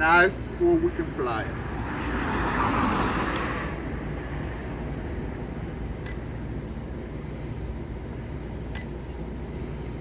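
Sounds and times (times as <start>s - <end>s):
low background rumble: 3.4s - 10.0s
remote control electronic beep: 8.8s - 9.0s.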